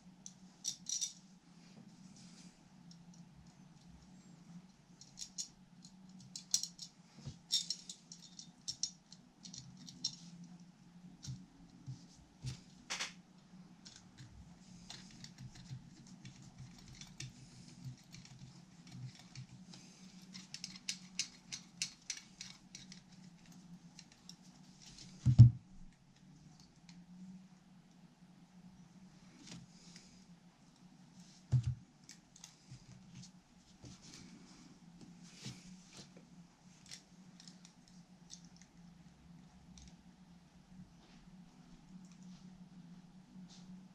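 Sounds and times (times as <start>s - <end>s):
steady low hum: 0.0s - 43.9s
metal parts clicking and rattling: 0.2s - 1.2s, 5.0s - 10.4s, 13.8s - 25.4s.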